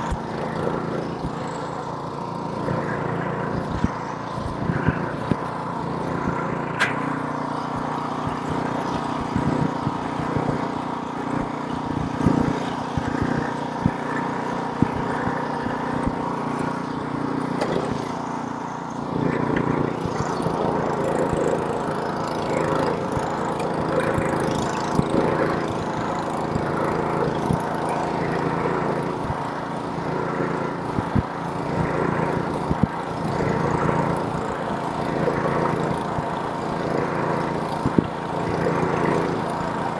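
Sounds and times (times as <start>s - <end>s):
snowblower engine running: 0.0s - 39.9s
sharp ticks and knocks: 3.5s - 16.8s.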